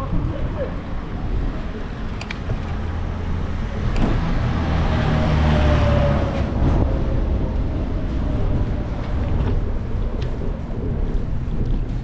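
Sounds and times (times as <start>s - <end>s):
vehicle passing by: 1.6s - 9.0s.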